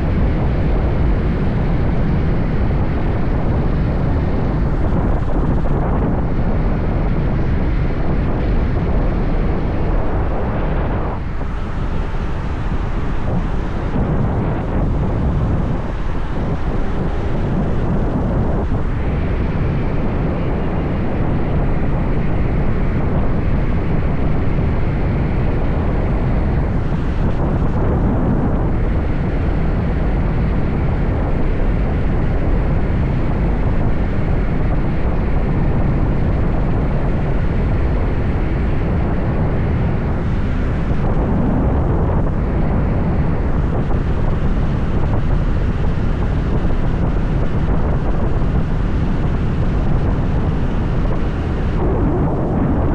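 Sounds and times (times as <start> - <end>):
road noise: 0.0 - 52.9
wind rushing on microphone: 0.0 - 52.9.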